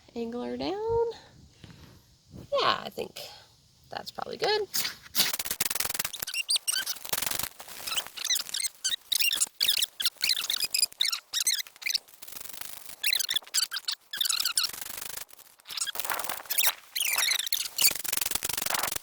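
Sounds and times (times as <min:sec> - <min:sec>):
ferro rod scraped with striker: 0:04.7 - 0:07.0.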